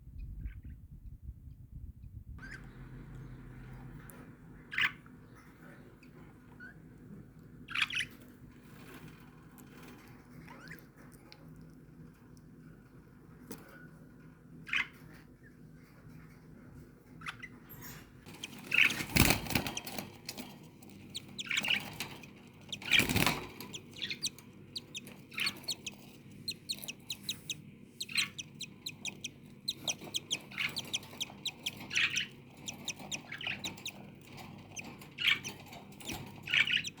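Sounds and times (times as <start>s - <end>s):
budgerigars chirping: 4.6s - 5.8s, 7.7s - 8.2s, 17.2s - 37.0s
wings flapping: 18.2s - 27.4s.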